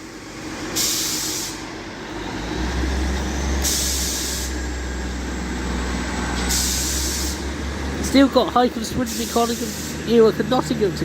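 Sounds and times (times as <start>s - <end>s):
train engine deep rumble: 0.0s - 11.0s
short sharp air hiss: 0.7s - 1.7s, 3.6s - 4.6s, 6.5s - 7.5s, 9.2s - 10.0s.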